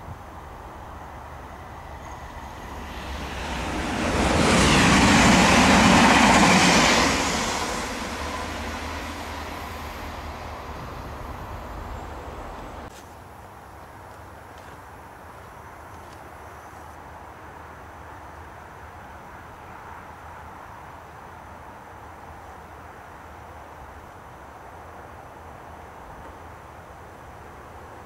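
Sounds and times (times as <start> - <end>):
train passing by: 0.0 - 12.9.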